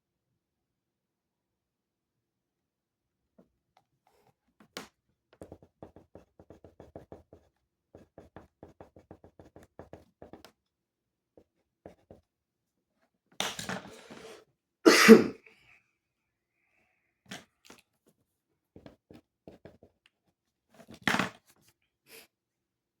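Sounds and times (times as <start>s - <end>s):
pen scratching on paper: 5.4s - 10.5s, 11.4s - 12.2s.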